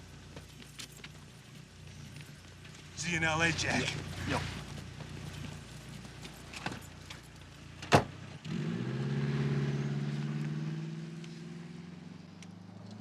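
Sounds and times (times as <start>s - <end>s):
car engine starting and driving off: 3.1s - 13.0s.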